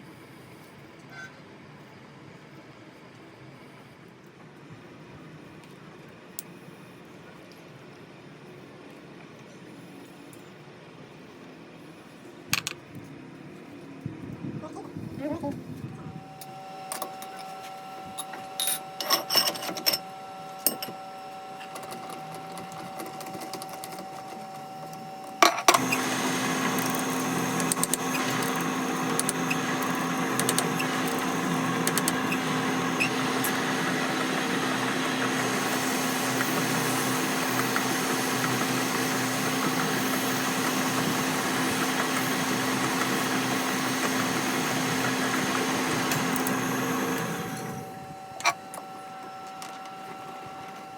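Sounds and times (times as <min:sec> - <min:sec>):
power tool motor running: 0:25.7 - 0:48.8.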